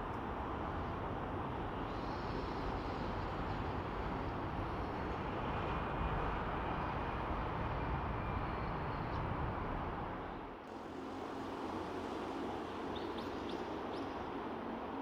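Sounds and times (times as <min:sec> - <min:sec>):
outdoor rumble and hiss: 0:00.0 - 0:15.0.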